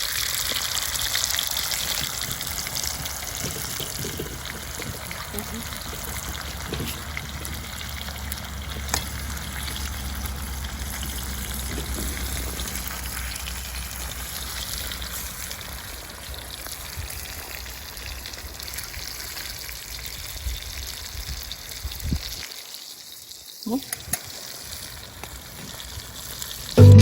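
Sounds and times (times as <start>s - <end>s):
food sizzling in a pan: 0.0s - 27.0s.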